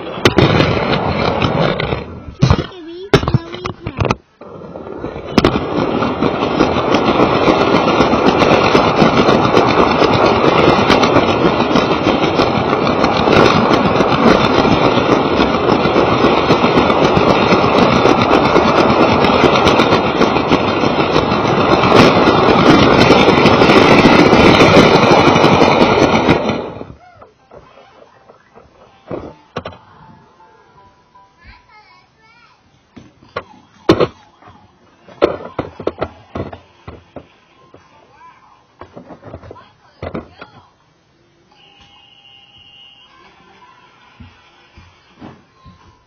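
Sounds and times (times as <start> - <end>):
toy train rattling on track: 4.7 - 29.7.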